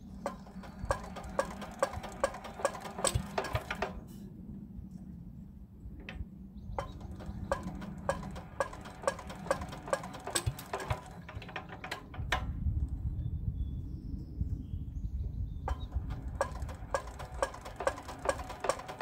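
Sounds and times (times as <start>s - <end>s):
diesel engine knocking: 0.0s - 4.0s, 6.8s - 12.5s, 15.7s - 19.0s.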